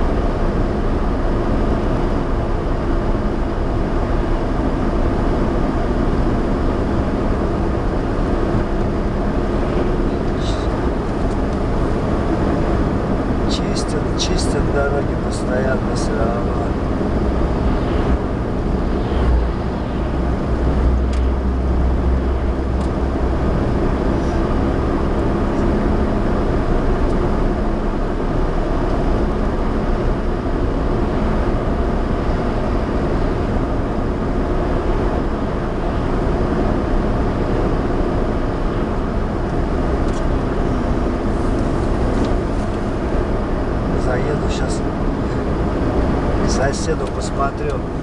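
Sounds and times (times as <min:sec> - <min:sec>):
car engine and tyre rumble: 0:00.0 - 0:48.0.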